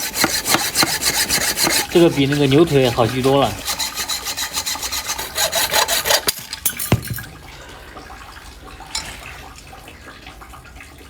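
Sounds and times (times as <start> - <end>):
sharp knocks: 0.0 - 1.9
blade rasping back and forth: 0.0 - 6.4.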